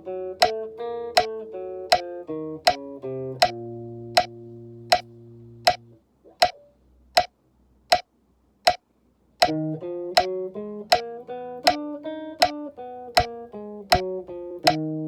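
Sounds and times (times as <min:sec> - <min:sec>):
guitar playing a scale: 0:00.0 - 0:05.9, 0:09.4 - 0:15.0
metronome ticking: 0:00.0 - 0:06.6, 0:09.4 - 0:14.9.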